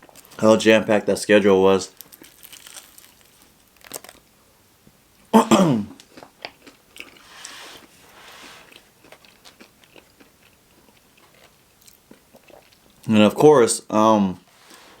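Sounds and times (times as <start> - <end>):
chewing crunchy fried food: 1.9 - 4.3, 5.9 - 13.1
soft hiss of breath: 7.2 - 8.7, 14.5 - 15.0.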